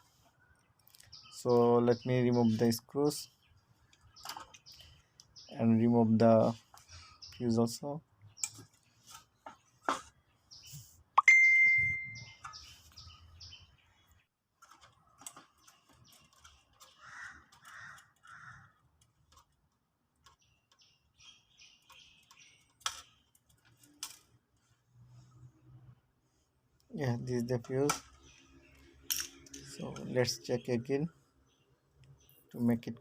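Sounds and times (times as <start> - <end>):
short chirps: 11.2 - 12.4.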